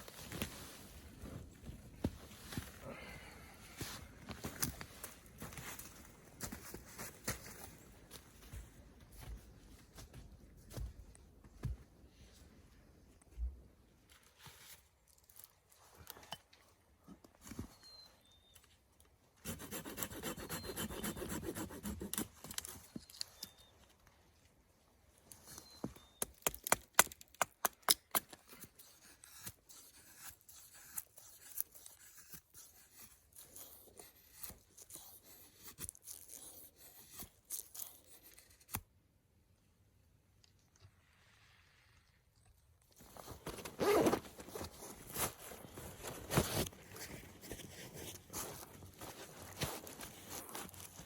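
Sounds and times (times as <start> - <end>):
rasping on dry wood: 19.4 - 22.3.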